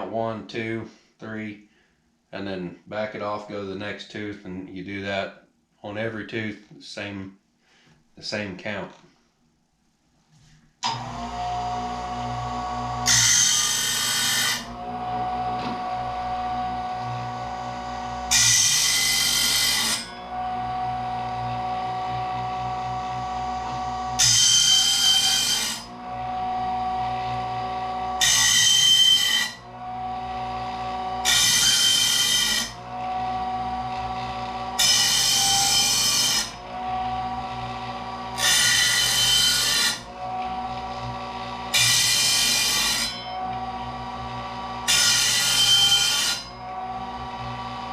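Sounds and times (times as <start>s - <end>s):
motor whine: 10.8s - 31.3s, 32.2s - 39.1s, 40.0s - 41.8s, 43.2s - 44.9s, 45.7s - 47.9s
grinding wheel on saw teeth: 10.9s - 47.9s.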